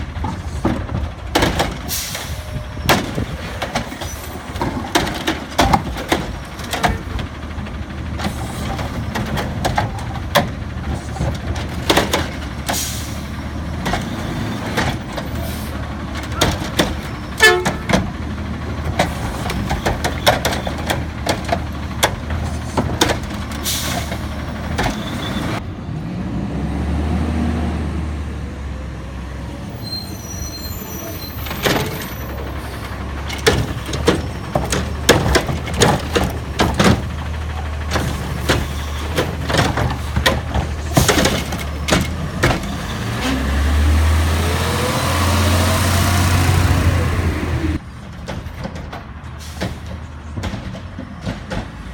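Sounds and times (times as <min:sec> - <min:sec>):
bins clanking: 0:00.0 - 0:25.6, 0:30.8 - 0:44.1
garbage truck diesel engine: 0:00.0 - 0:51.9.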